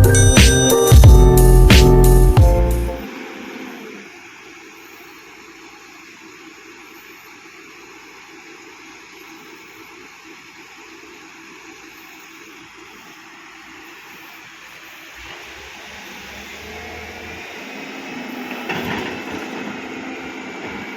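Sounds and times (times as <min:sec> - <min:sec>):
deep engine note: 0:00.0 - 0:03.1.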